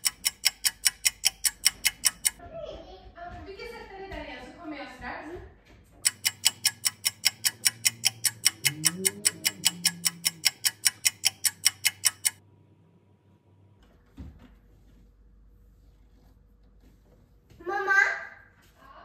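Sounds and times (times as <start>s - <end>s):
clock ticking: 0.0s - 2.4s, 6.0s - 12.4s.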